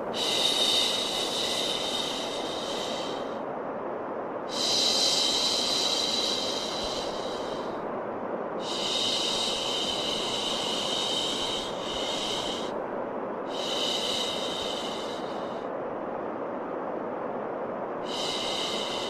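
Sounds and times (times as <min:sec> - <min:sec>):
steady white noise: 0:00.0 - 0:19.0.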